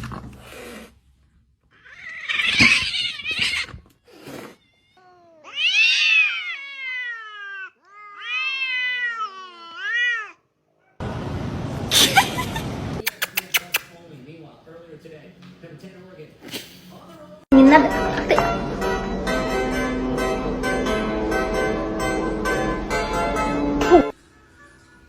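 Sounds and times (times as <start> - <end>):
cat yowling: 1.7 - 11.0.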